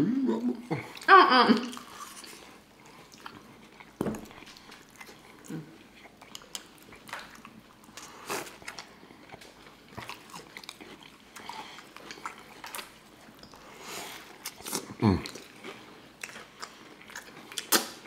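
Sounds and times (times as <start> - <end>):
chewing and biting food: 1.8 - 18.0
wet mouth sounds: 16.2 - 18.0.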